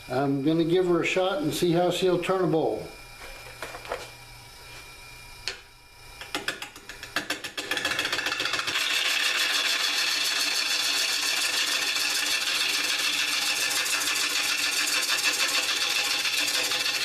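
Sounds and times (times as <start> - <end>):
lathe tool chattering on wood: 6.2 - 17.0.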